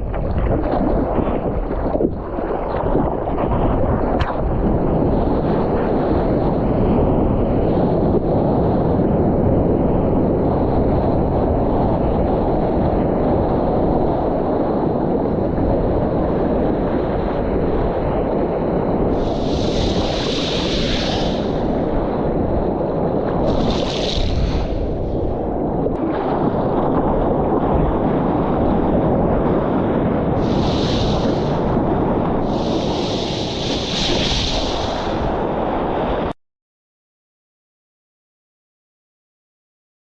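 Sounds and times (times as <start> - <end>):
wind buffeting microphone: 0.0 - 36.4
rushing water: 19.1 - 22.1, 23.0 - 25.3, 30.4 - 35.9.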